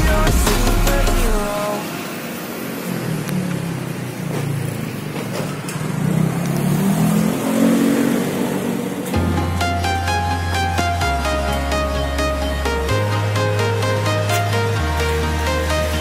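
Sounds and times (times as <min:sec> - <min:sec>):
background music: 0:00.0 - 0:02.2, 0:08.9 - 0:16.0
engine running: 0:00.0 - 0:16.0.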